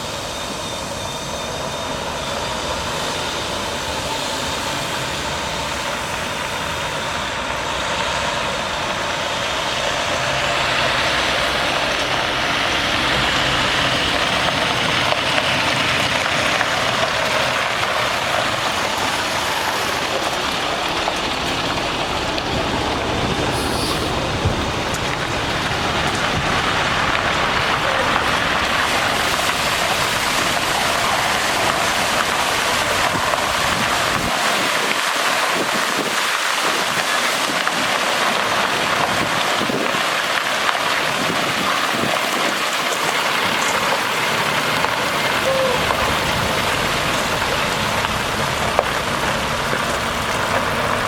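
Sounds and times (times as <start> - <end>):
diesel engine running pump: 0.0 - 51.0
water spraying hiss: 12.4 - 36.8.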